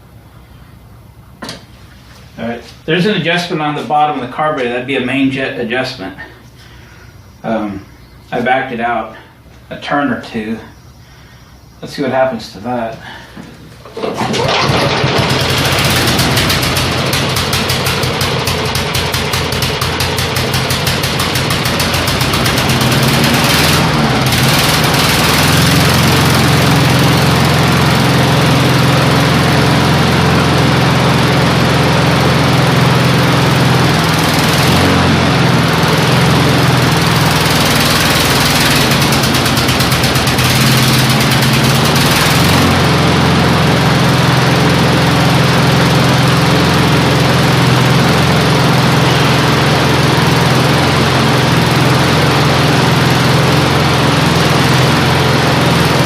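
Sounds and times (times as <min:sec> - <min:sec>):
lawn mower engine running: 0:13.8 - 0:56.0.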